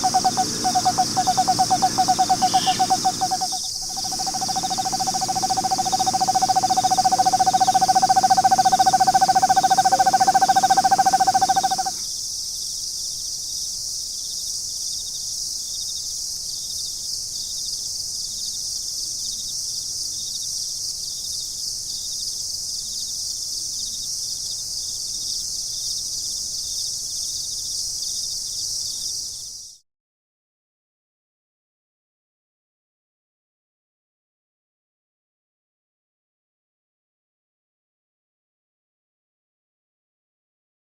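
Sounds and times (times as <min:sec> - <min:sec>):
owl trilling: 0:00.0 - 0:12.0
steady high hiss: 0:00.0 - 0:29.5.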